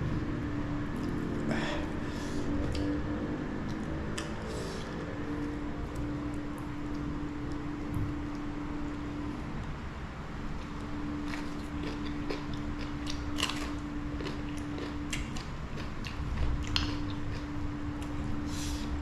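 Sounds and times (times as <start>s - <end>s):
person chewing and crunching food: 0.9s - 9.7s, 10.6s - 19.0s.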